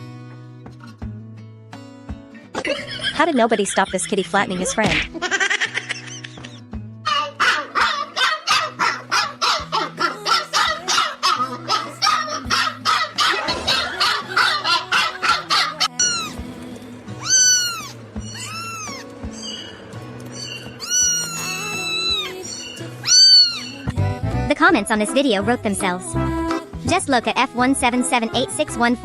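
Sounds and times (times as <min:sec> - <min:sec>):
background music with bass line: 0:04.4 - 0:29.0
cat meowing: 0:15.2 - 0:16.4, 0:17.2 - 0:19.1, 0:20.8 - 0:22.4, 0:23.0 - 0:23.8.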